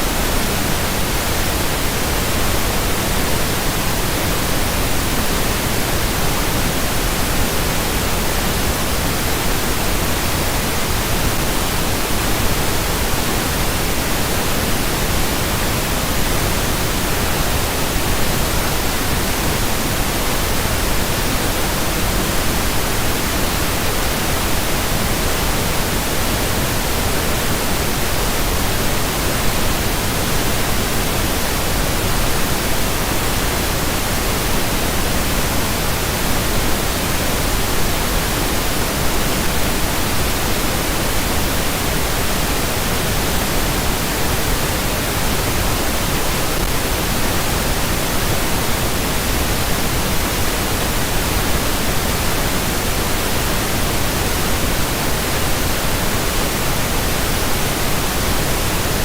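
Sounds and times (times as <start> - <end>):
pink noise hiss: 0.0 - 59.0.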